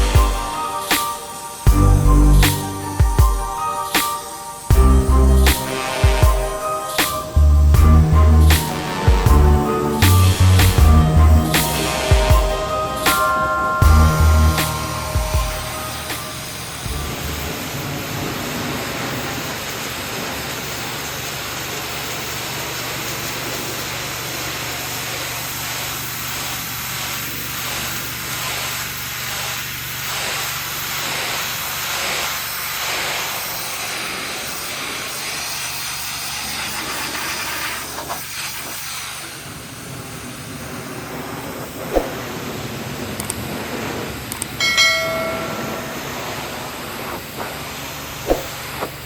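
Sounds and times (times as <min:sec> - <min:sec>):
low hum: 0:07.4 - 0:18.3
pressure washer spraying water: 0:19.4 - 0:39.6.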